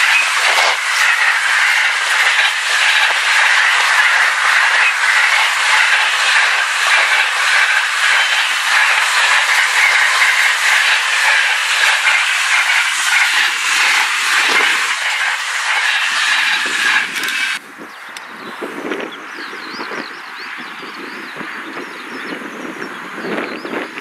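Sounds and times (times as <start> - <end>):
freight train wheels rumbling: 0.0 - 17.7.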